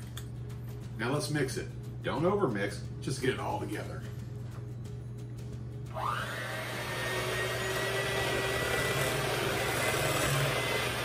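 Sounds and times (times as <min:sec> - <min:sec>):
electric mixer whirring: 0:05.9 - 0:11.0.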